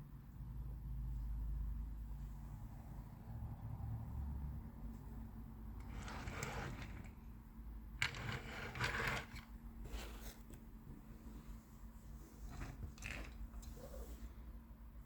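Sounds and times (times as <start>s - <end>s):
objects scraping and rustling: 5.8s - 7.2s, 8.0s - 14.4s.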